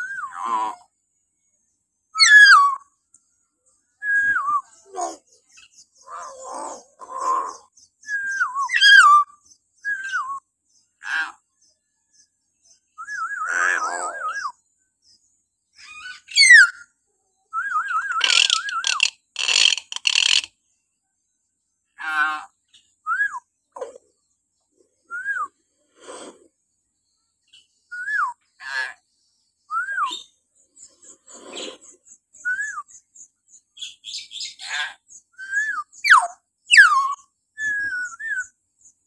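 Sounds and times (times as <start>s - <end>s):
myna shrill calls: 17.9s - 20.5s, 35.7s - 37.2s.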